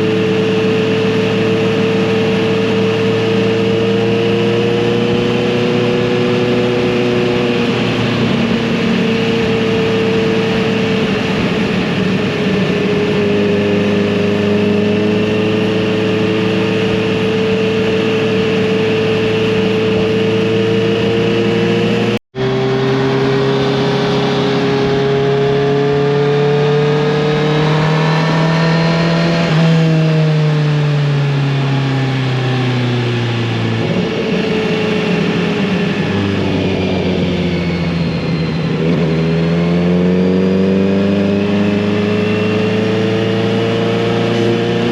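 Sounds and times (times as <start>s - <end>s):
motorcycle engine cruising: 0.0s - 44.9s.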